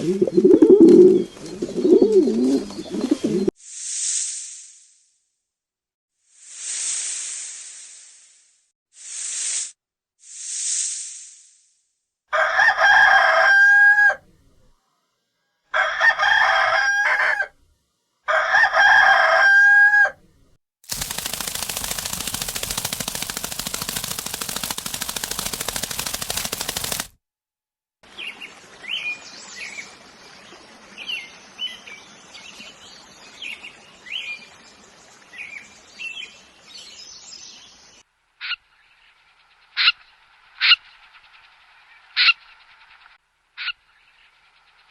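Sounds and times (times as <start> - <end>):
rooster crowing: 12.3 - 14.2, 15.7 - 17.6, 18.3 - 20.2.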